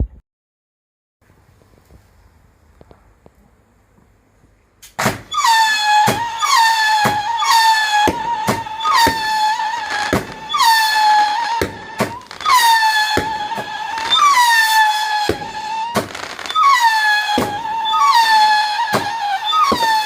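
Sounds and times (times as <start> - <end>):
firework whistling: 4.8 - 20.0
sharp cracks: 4.8 - 20.0.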